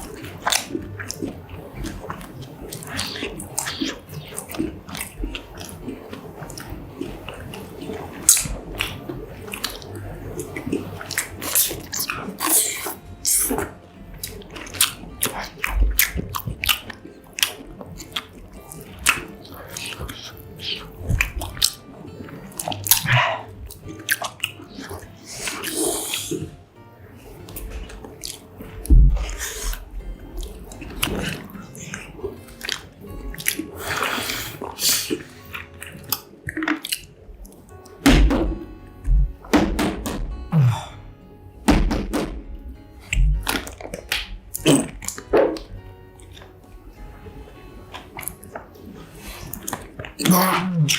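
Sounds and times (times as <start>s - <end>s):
biting and chewing: 0.0s - 26.6s, 27.4s - 41.1s, 41.7s - 50.9s
crackly mouth sounds: 0.0s - 26.6s, 27.2s - 41.1s, 42.1s - 50.9s
crunchy biting and chewing: 11.0s - 21.8s, 27.5s - 29.8s, 30.4s - 37.9s, 43.0s - 46.6s.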